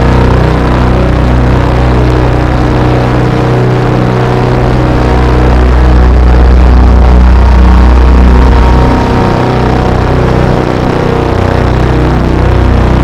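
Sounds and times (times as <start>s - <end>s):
dense drone music: 0.0s - 13.0s.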